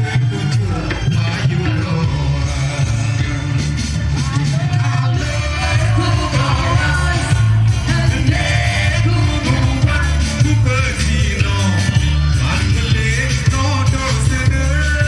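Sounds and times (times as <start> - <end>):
loud music with singing and bass: 0.0 - 15.0.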